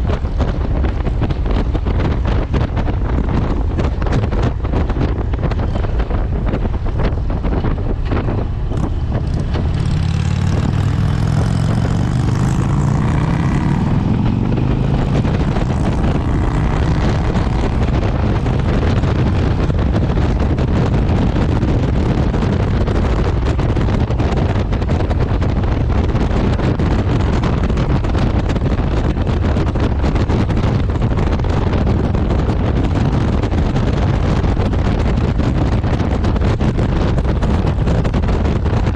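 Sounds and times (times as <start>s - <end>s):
motorcycle engine accelerating: 0.0s - 38.9s
wind rush on microphone: 0.0s - 38.9s.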